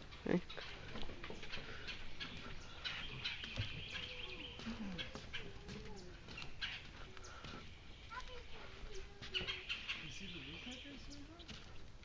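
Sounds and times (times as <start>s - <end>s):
faint distant voices: 0.0s - 11.9s
wild birds chirping: 0.0s - 12.0s.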